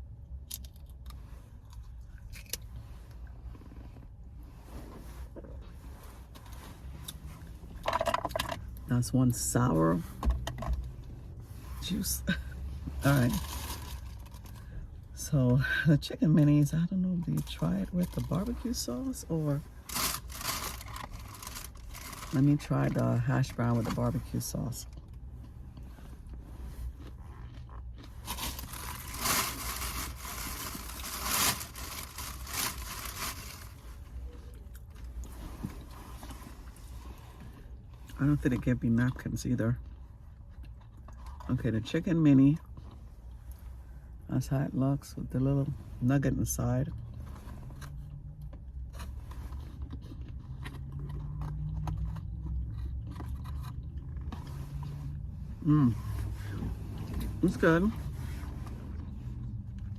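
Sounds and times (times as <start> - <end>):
food packaging rustling and scraping: 0.7 - 8.8, 9.4 - 14.8, 17.4 - 37.8, 47.0 - 59.9
person chewing food: 24.9 - 29.0, 39.8 - 41.5, 47.0 - 55.0.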